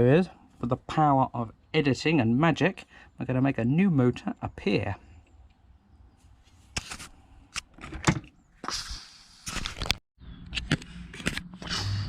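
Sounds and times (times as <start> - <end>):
objects scraping and rustling: 6.2 - 8.0, 8.9 - 10.0.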